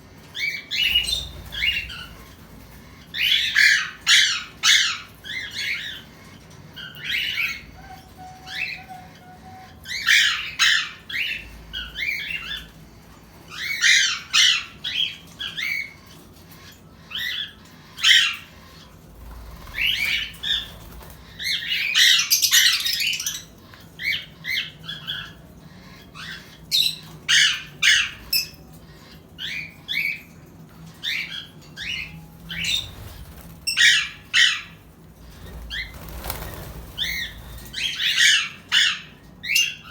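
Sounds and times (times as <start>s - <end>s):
parrots calling harshly: 0.4s - 12.7s.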